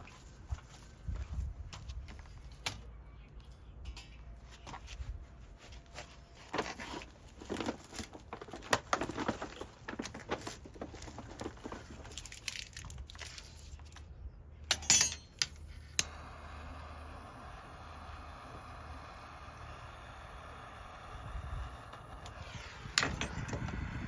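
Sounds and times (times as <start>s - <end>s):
rustling and crinkling: 0.0s - 2.6s, 4.3s - 14.2s.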